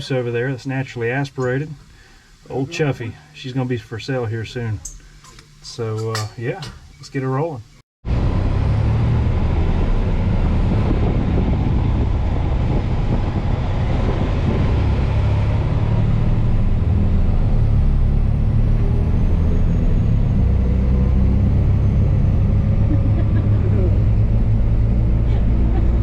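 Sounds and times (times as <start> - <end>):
truck diesel engine rumble: 8.1 - 26.0.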